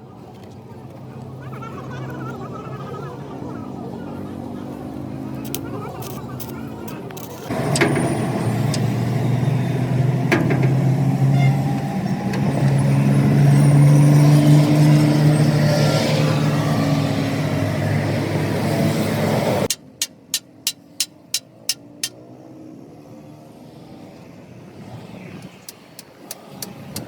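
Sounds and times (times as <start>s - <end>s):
truck engine running: 5.3s - 14.3s.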